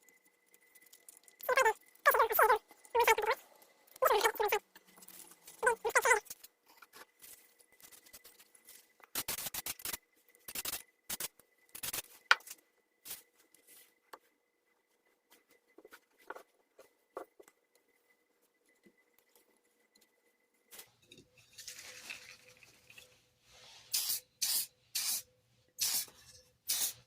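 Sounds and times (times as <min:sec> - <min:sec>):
small squeaks: 0:00.0 - 0:10.9
short hissing bursts: 0:23.5 - 0:27.0.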